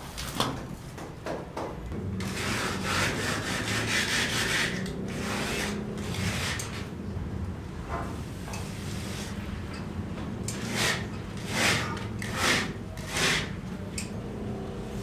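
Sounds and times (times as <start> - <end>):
sawing wood: 2.0 - 6.9, 10.5 - 13.7.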